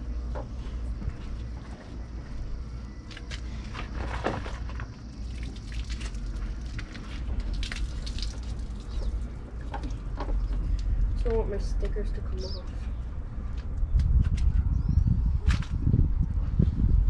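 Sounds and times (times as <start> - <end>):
low rumble: 0.0 - 17.0
wet scrubbing and splashing: 4.0 - 10.2.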